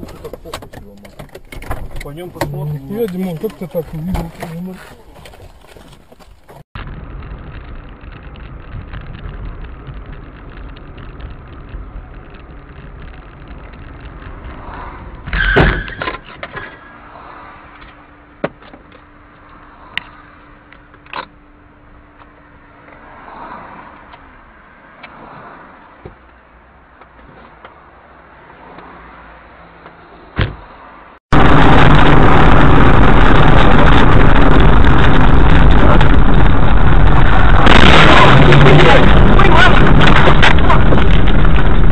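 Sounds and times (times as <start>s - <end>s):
car engine and tyres rumbling: 0.0s - 41.9s
loud sudden bang: 31.3s - 41.9s.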